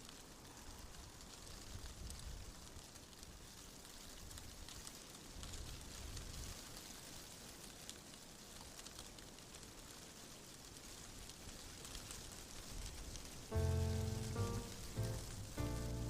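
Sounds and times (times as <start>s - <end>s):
fireplace crackling: 0.1s - 16.0s
faint low rumble: 13.5s - 16.0s
music: 13.5s - 16.0s.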